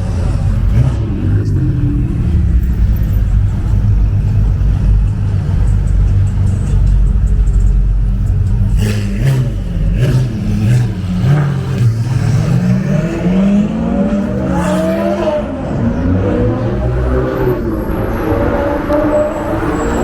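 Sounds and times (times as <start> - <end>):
sports car accelerating hard: 8.7 - 20.0.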